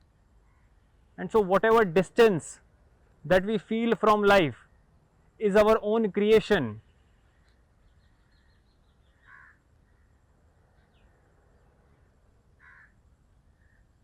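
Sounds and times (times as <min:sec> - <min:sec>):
short bird calls: 0:06.8 - 0:10.2.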